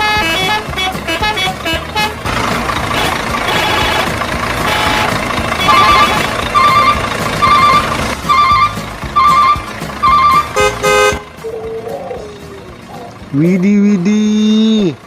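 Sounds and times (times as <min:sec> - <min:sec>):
truck engine: 0:00.0 - 0:15.0
reversing alarm beeping: 0:04.7 - 0:11.1
short high tones: 0:04.7 - 0:11.3.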